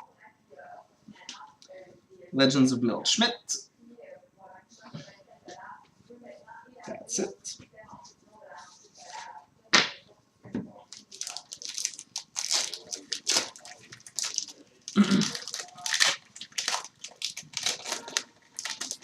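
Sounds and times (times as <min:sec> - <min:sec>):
wrapper tearing and crinkling: 0:10.9 - 0:19.0.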